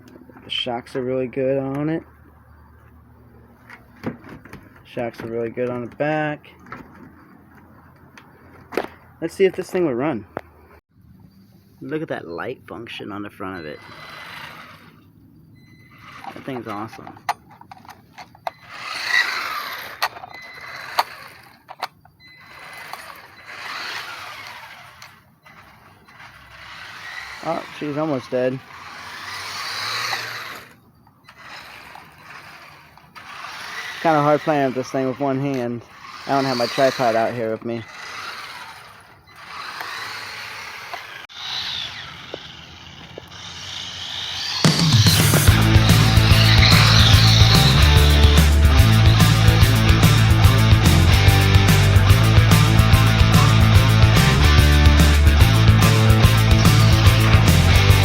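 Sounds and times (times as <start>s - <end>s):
toy truck motor whirring: 13.4s - 58.0s
loud rock music: 44.8s - 58.0s.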